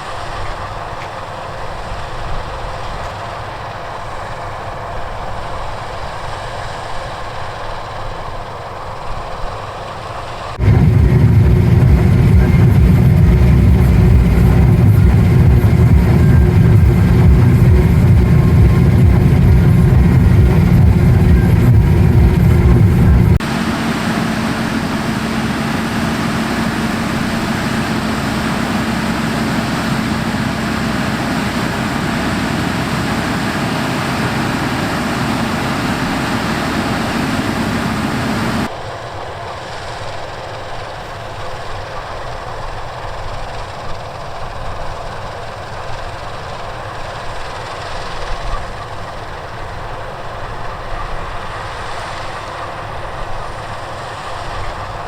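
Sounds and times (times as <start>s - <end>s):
harvest machinery running: 10.6s - 38.7s
steady droning tone: 10.6s - 38.7s.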